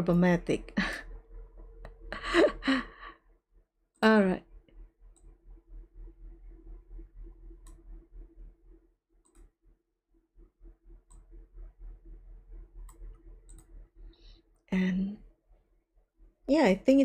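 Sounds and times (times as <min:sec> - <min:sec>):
low electrical hum: 0:00.0 - 0:17.0
computer mouse clicks: 0:07.6 - 0:08.0, 0:09.2 - 0:09.5, 0:11.1 - 0:11.5, 0:12.8 - 0:13.8.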